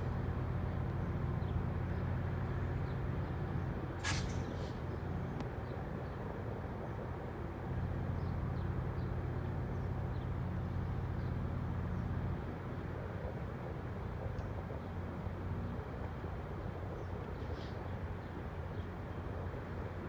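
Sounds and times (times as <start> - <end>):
diesel engine droning: 0.0 - 6.0
air brake hiss: 4.0 - 4.8.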